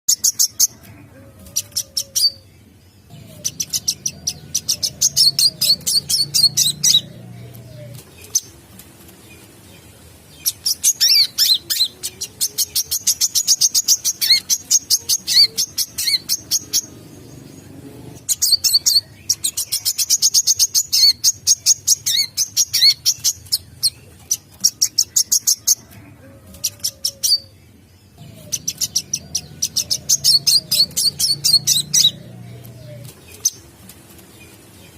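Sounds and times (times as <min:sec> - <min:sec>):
bird song high sharp chirps: 0:10.4 - 0:25.7.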